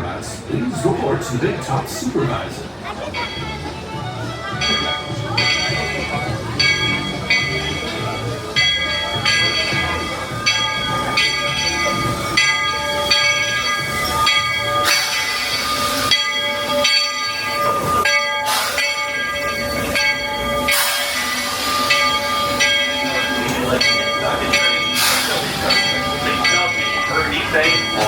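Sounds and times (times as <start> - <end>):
locomotive bell ringing: 0.6 - 28.0
steam hissing: 5.8 - 28.0.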